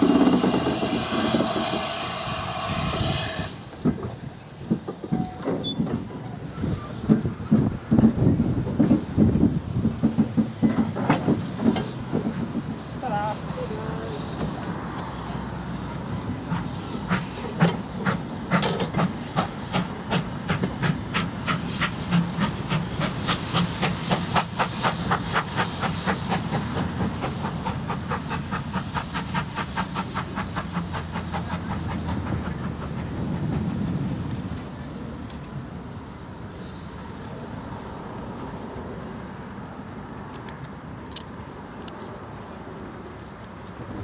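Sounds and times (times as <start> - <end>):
steam hiss: 0.0 - 35.0, 36.0 - 39.4
low train rumble: 0.0 - 44.0
wheels clicking over rail joints: 3.7 - 15.4, 16.5 - 23.2.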